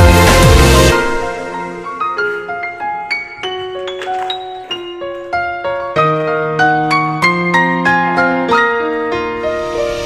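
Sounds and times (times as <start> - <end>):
piano melody: 0.0 - 10.0.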